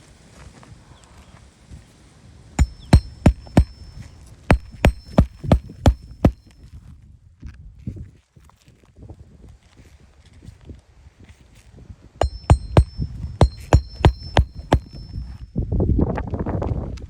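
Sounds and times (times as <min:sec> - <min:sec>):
nails driven into shingles: 0:02.6 - 0:06.4, 0:12.2 - 0:15.2.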